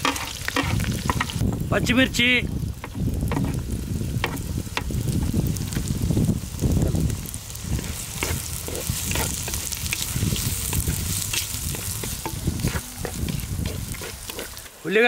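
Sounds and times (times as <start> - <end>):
onions sizzling in hot oil: 0.0 - 15.0
spatula scraping and clicking: 7.8 - 14.7.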